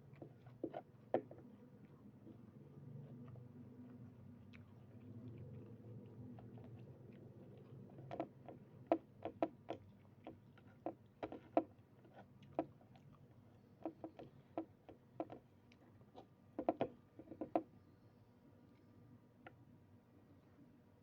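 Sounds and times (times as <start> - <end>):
eating clicks and smacks: 3.2 - 15.8.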